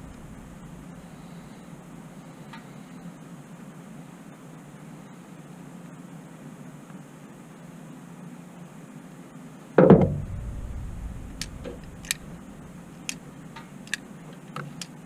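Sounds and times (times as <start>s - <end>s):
low rumble: 0.0s - 2.4s, 10.0s - 14.0s
loud clunk: 9.8s - 13.7s.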